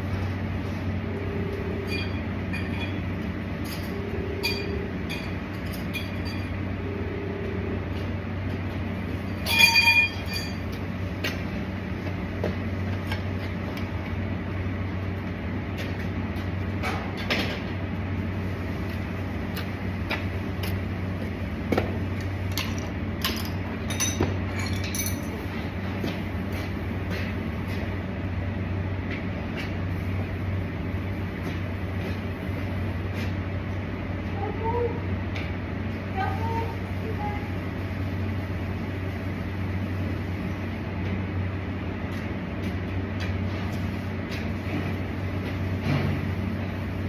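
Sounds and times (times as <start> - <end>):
machine hum: 0.0 - 43.2
ringing metal clang: 9.4 - 10.6.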